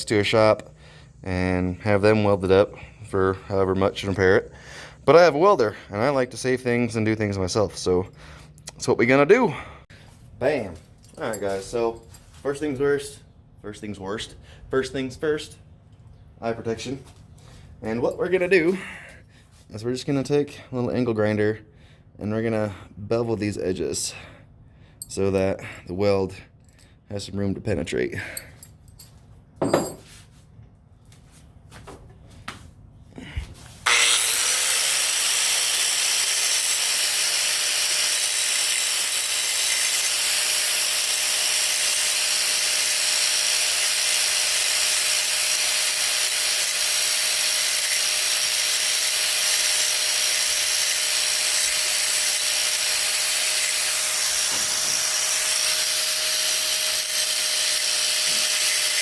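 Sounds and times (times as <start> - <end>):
angle grinder grinding metal: 33.8 - 59.0.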